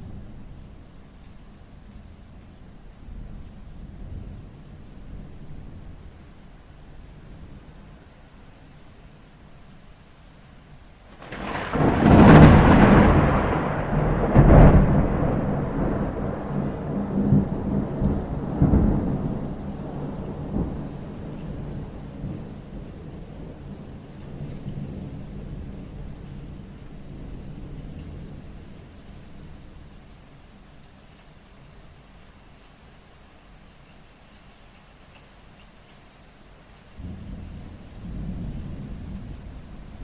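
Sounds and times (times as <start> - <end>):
steady rain falling: 0.0 - 40.0
thunder clap and rumble: 11.1 - 28.5, 37.0 - 40.0.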